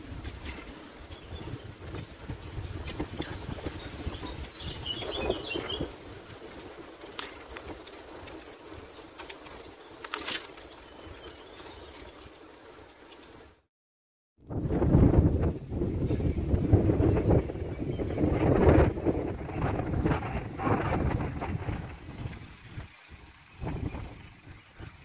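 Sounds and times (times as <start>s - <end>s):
wind rumbling on microphone: 0.0s - 10.1s, 14.4s - 25.0s
bird chirps: 3.3s - 5.9s.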